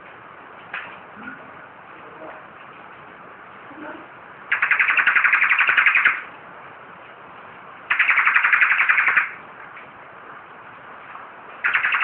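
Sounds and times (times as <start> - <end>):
bird singing buzzy trills: 4.5 - 6.3, 7.9 - 9.4, 11.6 - 12.0.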